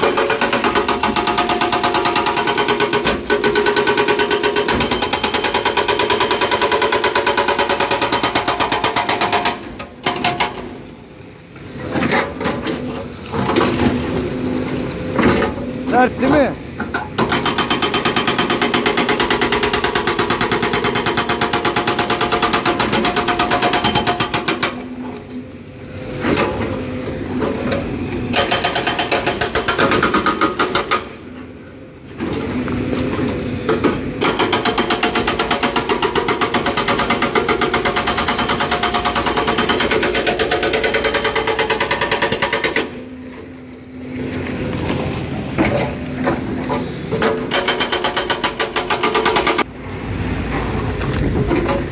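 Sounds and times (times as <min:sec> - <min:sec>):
hydraulic breaker hammering rock: 0:00.0 - 0:10.8, 0:15.1 - 0:25.2, 0:26.1 - 0:31.4, 0:32.3 - 0:43.2, 0:45.5 - 0:49.7
excavator engine running: 0:00.0 - 0:51.9.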